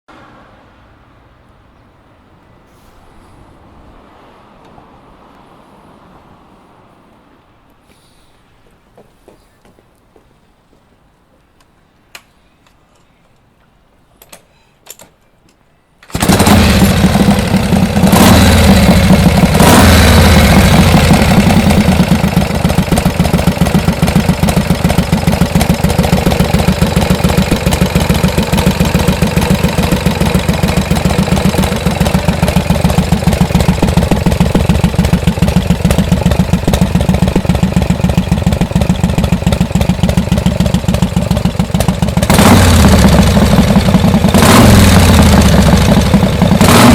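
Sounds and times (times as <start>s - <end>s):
faint clicks: 11.6s - 16.1s
motorcycle engine starting and revving: 16.1s - 46.9s.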